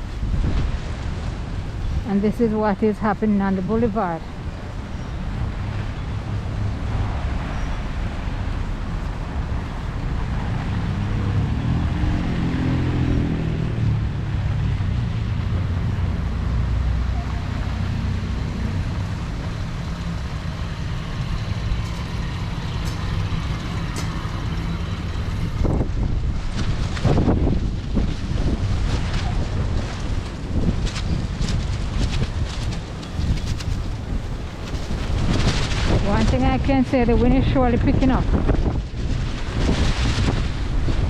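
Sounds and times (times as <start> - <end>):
heavy vehicle engine passing: 0.0 - 28.1, 32.9 - 37.6
road traffic passing: 0.0 - 30.9, 31.6 - 41.0
wind rumble on microphone: 0.0 - 41.0.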